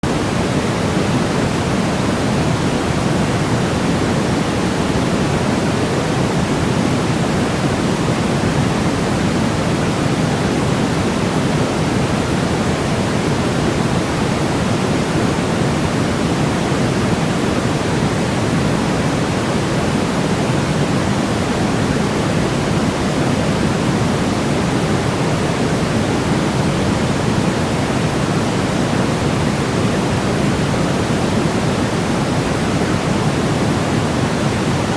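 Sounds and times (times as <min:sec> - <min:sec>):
low white noise hiss: 0:00.0 - 0:34.9.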